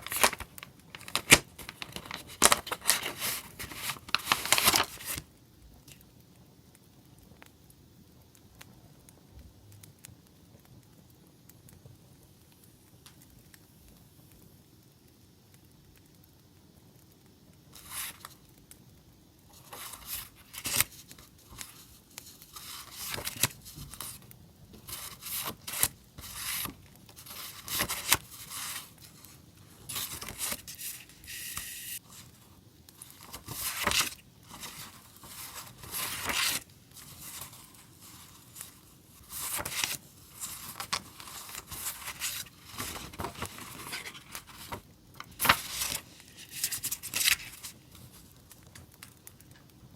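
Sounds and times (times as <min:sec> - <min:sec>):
paper and sticker sheets rustling: 0:00.0 - 0:05.3, 0:17.8 - 0:18.4, 0:19.5 - 0:48.8.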